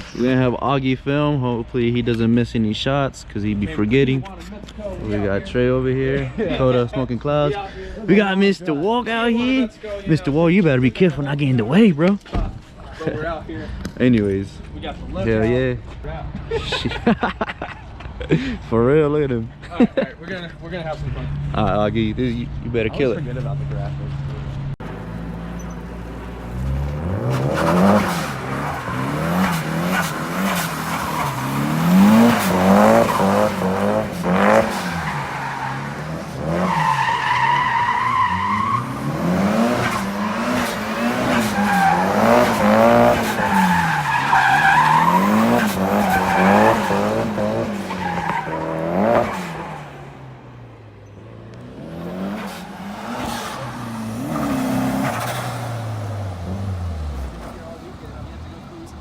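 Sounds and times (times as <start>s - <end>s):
tires squealing: 20.3s - 59.0s
car engine revving hard: 24.8s - 50.4s, 51.3s - 57.6s.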